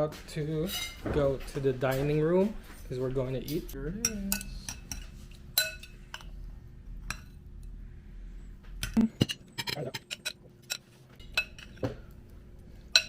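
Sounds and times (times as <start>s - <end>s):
dishes and cutlery clinking: 0.6s - 2.2s, 3.3s - 6.3s, 8.8s - 12.1s.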